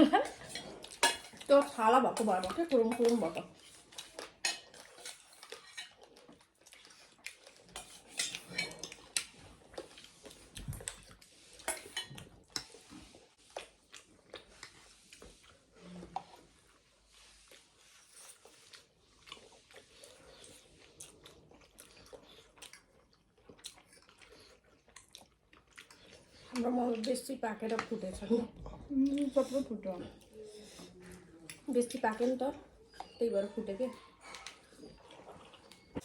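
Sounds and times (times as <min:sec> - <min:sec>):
chewing: 0:00.0 - 0:36.0
cutlery clinking on dishes: 0:00.2 - 0:01.5, 0:07.8 - 0:09.2, 0:11.6 - 0:12.8.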